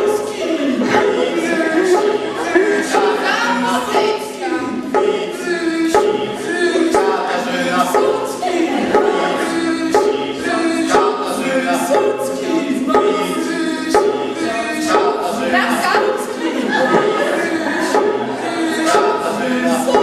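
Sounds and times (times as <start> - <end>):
group singing a cappella: 0.0 - 20.0.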